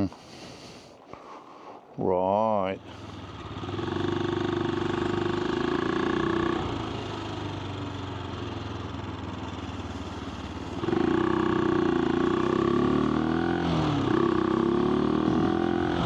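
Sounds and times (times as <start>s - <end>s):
motorcycle engine running: 2.8s - 16.0s.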